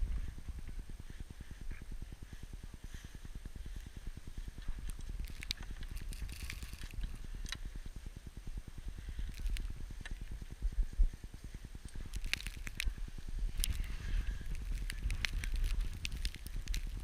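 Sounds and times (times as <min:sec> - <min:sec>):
wind buffeting microphone: 0:00.0 - 0:17.0
sharp clicks and crackles: 0:02.9 - 0:17.0.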